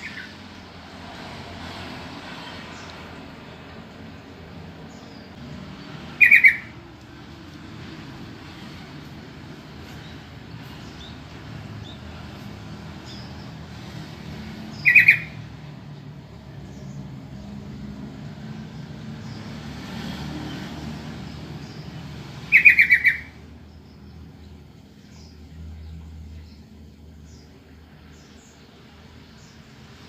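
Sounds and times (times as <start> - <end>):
bird harsh chattering: 6.1 - 6.8, 14.7 - 15.4, 22.5 - 23.4.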